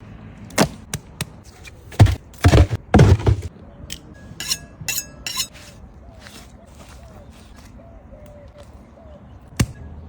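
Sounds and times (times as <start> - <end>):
deep heavy thuds: 2.0 - 3.5.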